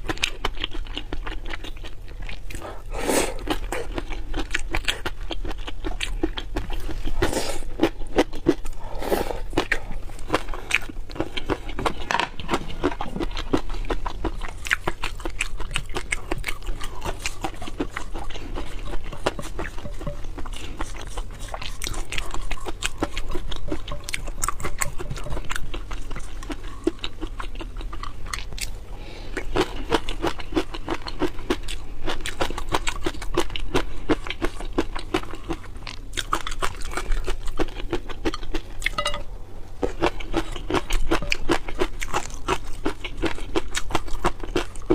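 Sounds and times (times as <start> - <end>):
chewing and crunching food: 0.0 - 44.9.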